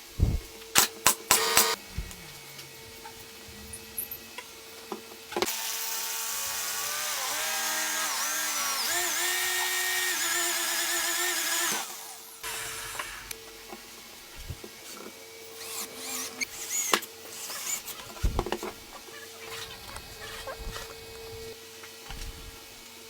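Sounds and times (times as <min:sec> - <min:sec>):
jigsaw cutting wood: 0:00.2 - 0:01.8, 0:05.4 - 0:13.4, 0:14.4 - 0:14.7, 0:15.5 - 0:21.4.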